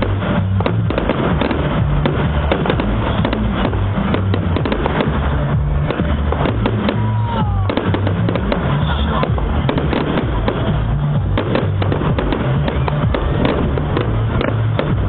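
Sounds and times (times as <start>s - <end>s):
bass-heavy music: 0.0s - 15.0s
fireworks bangs and crackles: 0.0s - 15.0s
falling firework whistle: 6.0s - 9.3s, 11.9s - 14.5s.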